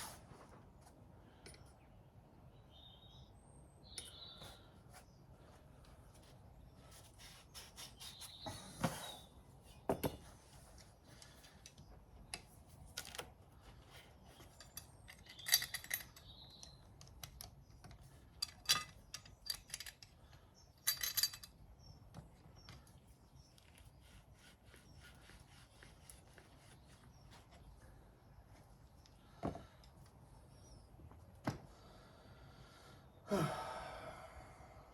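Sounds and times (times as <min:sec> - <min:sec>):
metallic clinks of hand tools: 0:14.6 - 0:16.8, 0:20.8 - 0:21.6.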